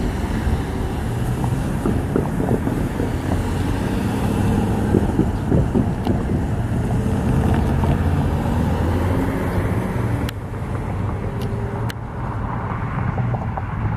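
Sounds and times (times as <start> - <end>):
diesel locomotive engine drone: 0.0 - 13.9
wind buffeting microphone: 0.0 - 13.9.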